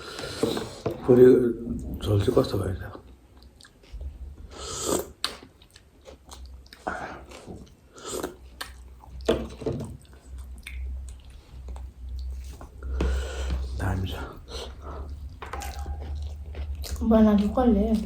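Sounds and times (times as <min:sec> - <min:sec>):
chewing with wet squishes: 0:03.0 - 0:04.2, 0:05.1 - 0:12.9, 0:13.6 - 0:18.0
low steady hum: 0:05.6 - 0:18.0.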